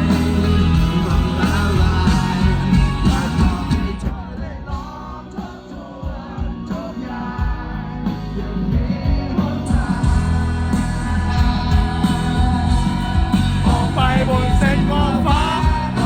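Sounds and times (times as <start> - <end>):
rock band with singing: 0.0 - 16.0.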